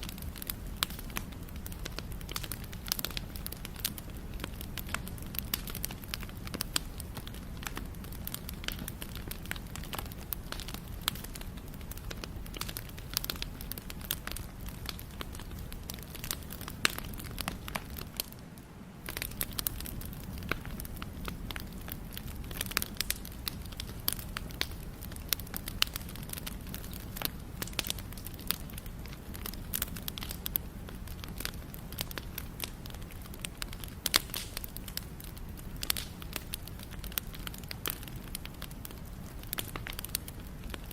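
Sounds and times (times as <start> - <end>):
fire crackles and pops: 0.0 - 40.9
low rumble of flame: 0.0 - 40.9.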